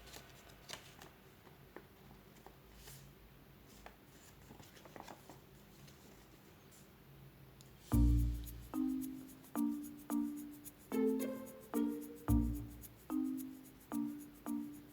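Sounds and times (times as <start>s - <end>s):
paper rustling: 0.0s - 6.8s.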